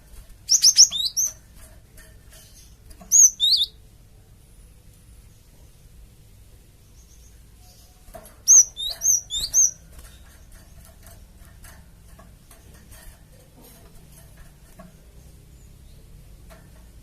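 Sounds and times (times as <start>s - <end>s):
faint ticking bird notes: 0.0s - 13.6s
bird chirping high notes: 3.1s - 3.8s.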